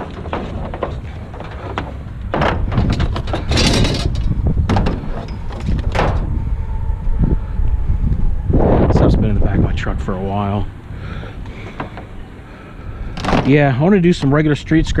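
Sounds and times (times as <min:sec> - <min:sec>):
knocks and scraping clatter: 0:00.0 - 0:06.8, 0:11.4 - 0:14.4
low rumble: 0:00.0 - 0:14.0.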